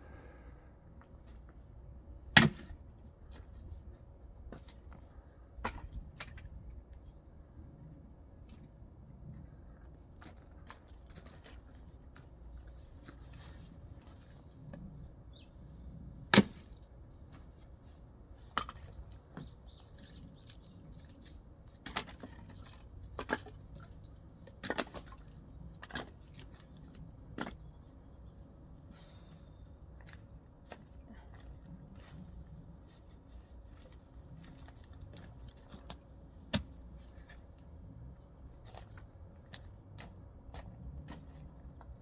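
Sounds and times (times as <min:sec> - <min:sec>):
axe chopping wood: 0:02.3 - 0:02.8, 0:16.3 - 0:16.8.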